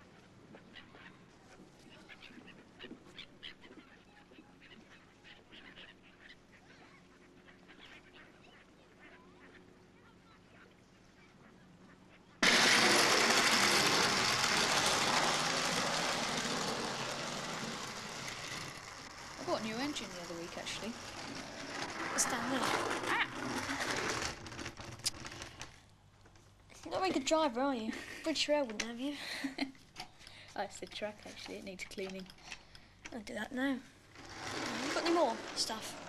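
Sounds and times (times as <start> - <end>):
birds calling faintly: 0.0 - 12.4
loud rushing noise: 12.4 - 19.4.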